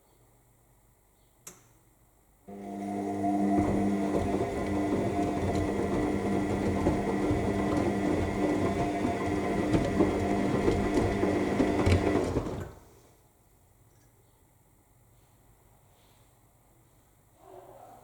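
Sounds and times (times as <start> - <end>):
washing machine motor humming: 2.5 - 12.8
laundry tumbling and sloshing: 3.1 - 12.8.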